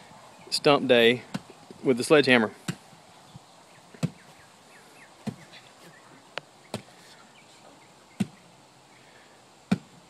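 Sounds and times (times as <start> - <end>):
sledgehammer striking a stump: 9.7 - 10.0.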